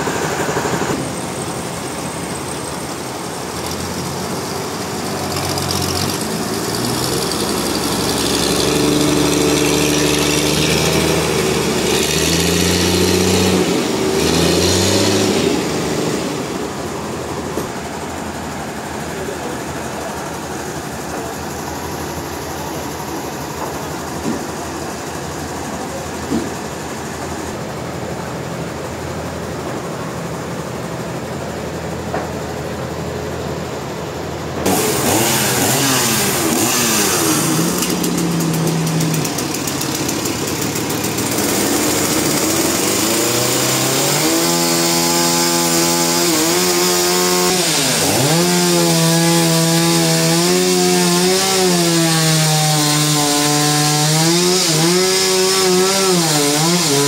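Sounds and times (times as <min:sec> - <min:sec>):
saw hissing through log: 0:00.0 - 0:27.6, 0:34.6 - 0:57.0
saw engine running: 0:00.0 - 0:57.0.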